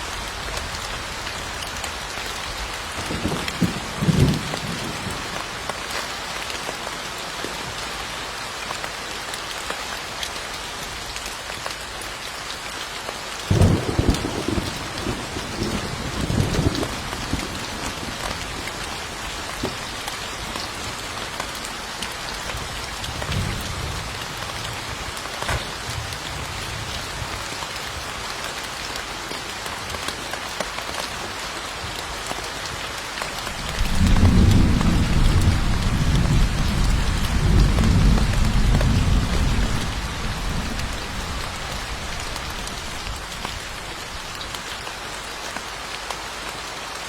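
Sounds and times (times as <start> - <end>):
heavy rain pattering: 0.0 - 47.0
thunder rumbling: 3.0 - 5.3, 13.5 - 18.8, 33.7 - 43.1.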